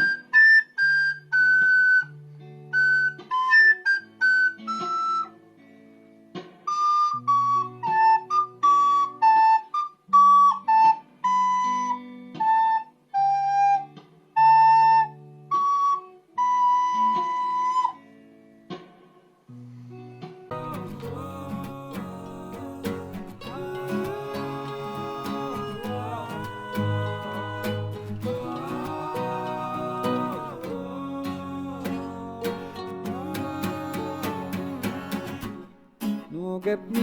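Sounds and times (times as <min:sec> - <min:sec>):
instrumental music: 0:20.3 - 0:37.0.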